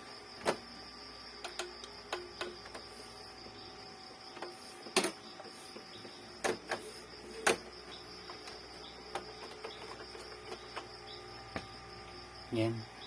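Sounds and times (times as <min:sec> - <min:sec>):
faint high whine: 0:00.0 - 0:13.0
printer mechanism clicks: 0:01.4 - 0:02.9, 0:04.4 - 0:05.3, 0:07.4 - 0:10.9.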